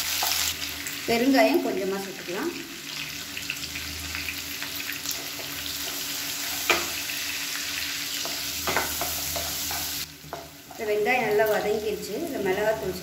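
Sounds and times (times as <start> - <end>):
shallots sizzling in hot oil: 0.0 - 13.0
spatula stirring in pan: 5.0 - 10.8.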